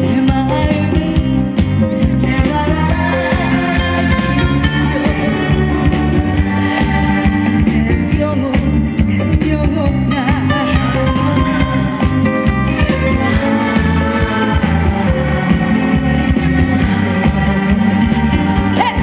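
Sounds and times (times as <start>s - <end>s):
backing music with bass and guitar: 0.0s - 19.0s
woman singing with vibrato: 0.0s - 19.0s.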